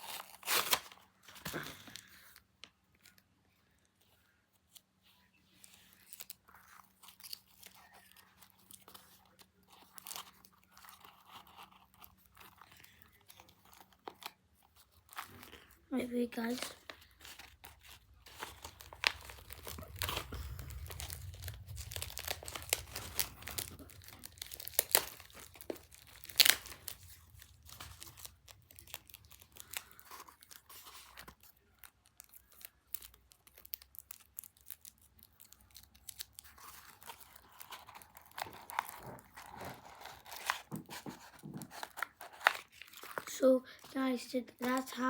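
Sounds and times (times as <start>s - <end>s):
paper crinkling: 0.0s - 45.0s
low handling rumble: 18.2s - 27.9s.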